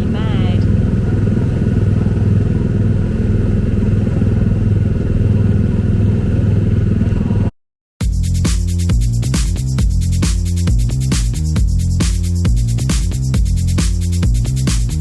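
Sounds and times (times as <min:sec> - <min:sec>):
engine-like mechanical rumble: 0:00.0 - 0:07.5.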